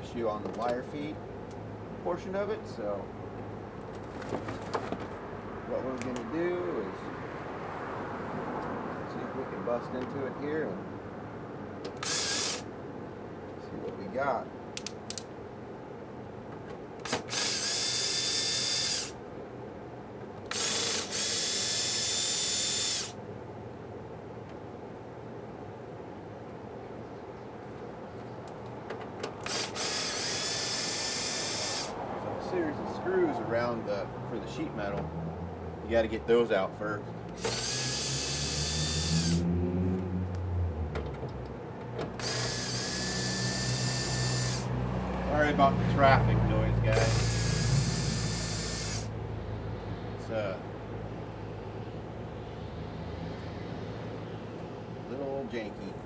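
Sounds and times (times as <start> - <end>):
low traffic rumble: 0.0 - 56.0
drill click: 11.9 - 12.7, 17.0 - 19.2, 20.5 - 23.2, 29.4 - 31.9, 37.4 - 39.4, 42.1 - 44.7, 46.9 - 49.1
power drill whining: 12.0 - 12.7, 17.0 - 19.2, 20.5 - 23.2, 29.4 - 32.0, 37.4 - 39.4, 42.2 - 44.7, 46.9 - 49.1.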